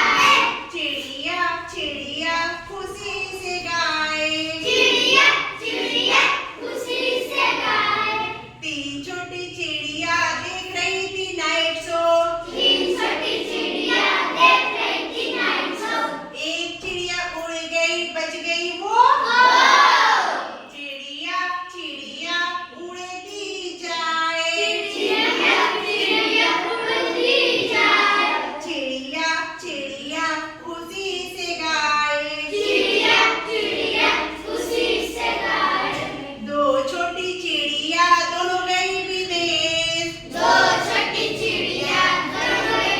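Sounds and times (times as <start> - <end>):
children singing together: 0.0 - 1.1, 4.4 - 8.6, 12.3 - 16.4, 19.2 - 20.7, 24.6 - 28.8, 32.4 - 36.5, 40.1 - 42.9.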